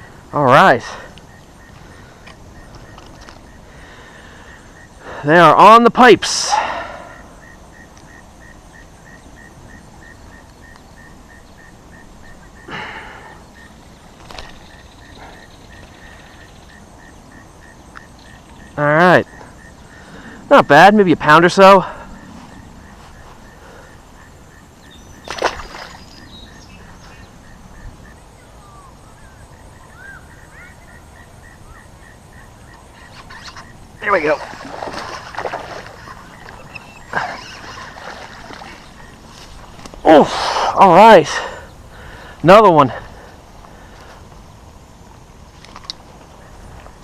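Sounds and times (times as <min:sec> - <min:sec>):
insect chirping: 0:00.0 - 0:47.0
low background hiss: 0:00.0 - 0:47.0
short bird-like chirps: 0:32.6 - 0:34.2, 0:36.0 - 0:37.9
faint repeating chirp: 0:36.1 - 0:37.8.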